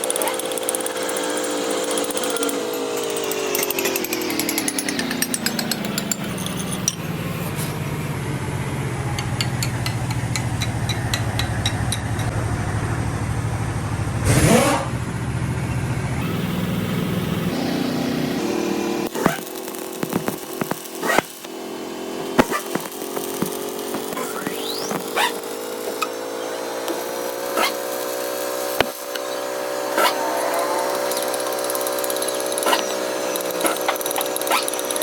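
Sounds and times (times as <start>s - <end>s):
machine motor humming: 16.2s - 35.0s.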